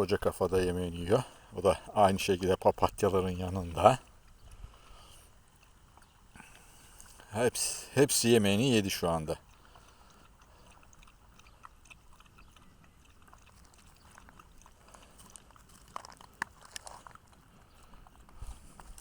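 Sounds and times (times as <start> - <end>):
dog crunching food: 8.2 - 19.0.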